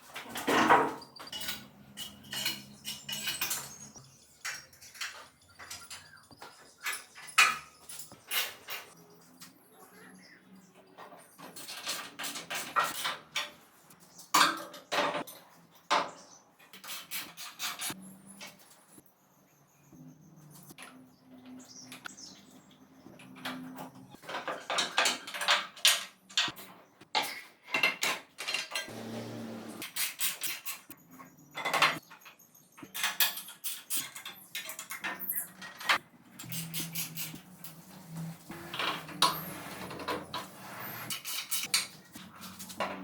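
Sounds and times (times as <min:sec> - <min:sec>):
metal tools clinking: 0:01.2 - 0:06.1.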